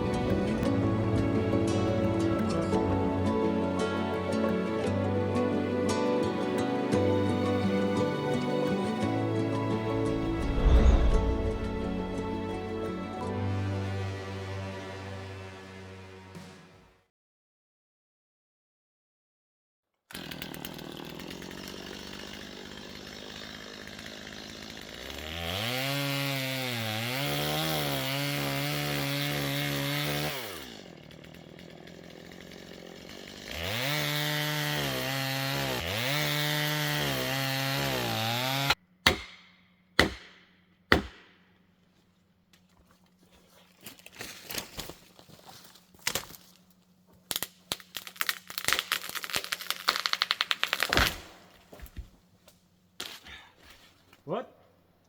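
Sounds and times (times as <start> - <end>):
chainsaw cutting wood: 0.0 - 16.9, 20.1 - 41.4, 43.9 - 52.0
sharp knocks: 39.1 - 41.4.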